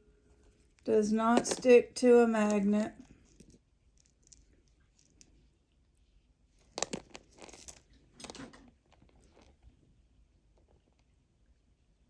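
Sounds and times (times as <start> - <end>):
necklace handling clicks: 6.7 - 7.8.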